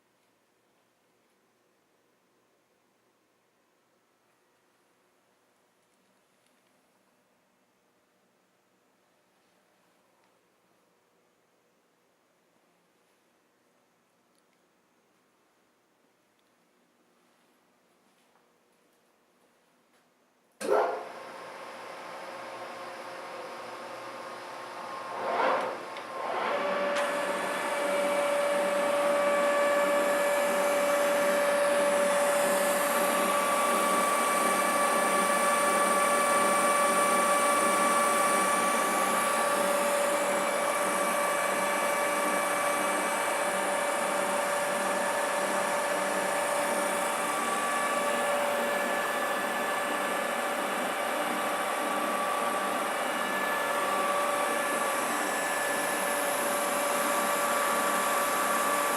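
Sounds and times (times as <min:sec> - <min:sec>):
metal lathe whining: 0:22.0 - 0:58.9.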